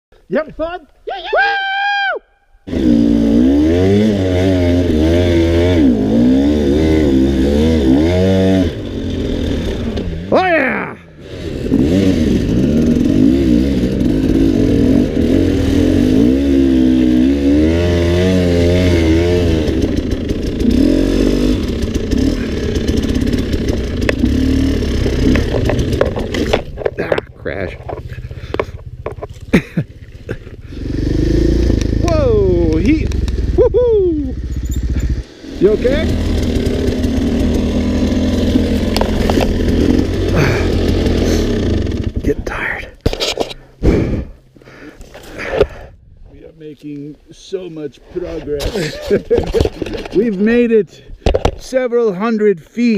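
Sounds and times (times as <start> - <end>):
dirt bike engine revving: 2.6 - 42.6.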